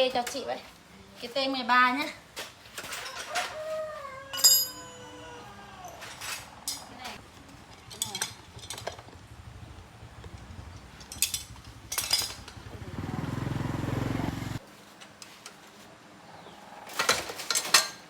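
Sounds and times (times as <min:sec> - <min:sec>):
metal tool clinks: 0:04.3 - 0:05.1
small motorcycle engine putter: 0:07.6 - 0:12.8.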